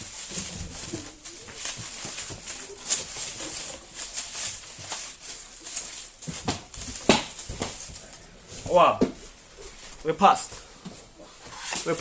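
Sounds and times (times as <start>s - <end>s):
packing material rustling: 0.0s - 9.0s.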